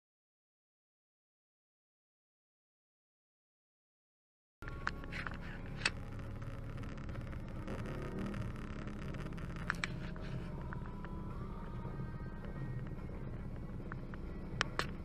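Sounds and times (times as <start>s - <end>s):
car driving rumble: 4.6s - 15.0s
sharp clicks: 12.4s - 15.0s.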